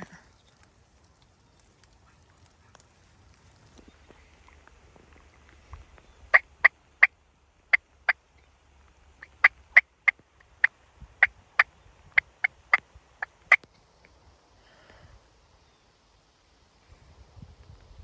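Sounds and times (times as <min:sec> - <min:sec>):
turkey hen clucking: 0:06.3 - 0:07.1, 0:09.2 - 0:13.6.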